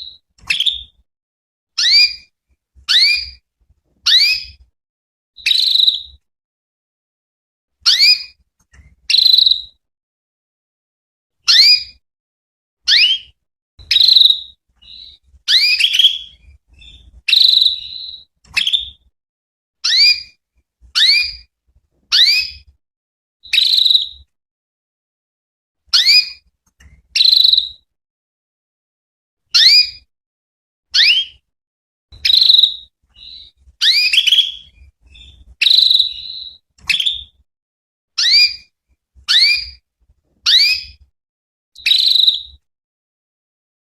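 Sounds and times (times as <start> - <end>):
canary whistled calls: 0.0 - 1.0, 1.8 - 2.3, 2.9 - 3.4, 4.0 - 4.6, 5.4 - 6.2, 7.8 - 8.4, 9.1 - 9.8, 11.5 - 12.0, 12.9 - 19.0, 19.8 - 20.4, 21.0 - 21.5, 22.1 - 22.7, 23.4 - 24.3, 25.9 - 26.4, 27.2 - 27.8, 29.6 - 30.1, 31.0 - 31.4, 32.2 - 37.4, 38.2 - 38.7, 39.3 - 39.8, 40.5 - 41.0, 41.8 - 42.6.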